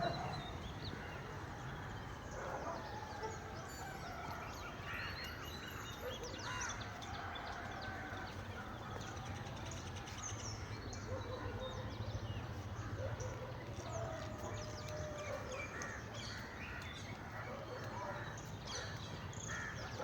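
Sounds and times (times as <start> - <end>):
birds chirping: 0.0 - 3.8.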